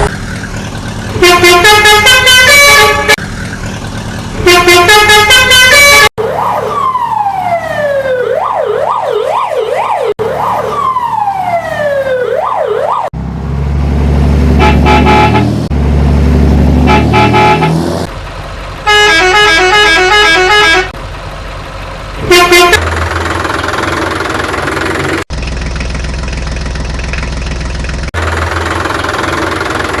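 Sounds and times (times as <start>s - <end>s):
vehicle engine running: 0.0s - 6.0s, 13.2s - 30.0s
beeping horn: 1.2s - 3.2s, 4.4s - 6.1s, 14.5s - 15.7s, 16.8s - 17.9s, 18.9s - 21.0s, 22.2s - 22.9s
horn toots: 1.2s - 3.2s, 4.4s - 6.1s, 14.5s - 15.7s, 16.7s - 18.1s, 18.9s - 21.0s, 22.2s - 22.9s
short horn blast: 1.2s - 3.2s, 4.4s - 6.1s, 14.5s - 15.7s, 16.8s - 18.0s, 18.9s - 21.0s, 22.2s - 22.8s
siren sweeping and warbling: 5.8s - 13.1s.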